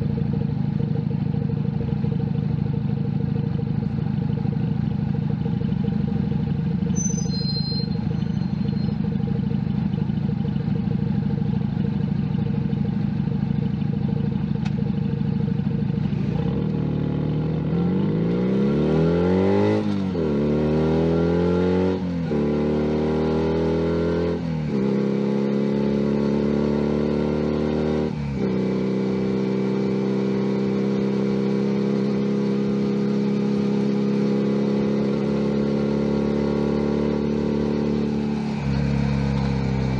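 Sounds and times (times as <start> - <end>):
motorcycle engine idling: 0.0 - 17.6
engine revving through gears: 16.2 - 32.3.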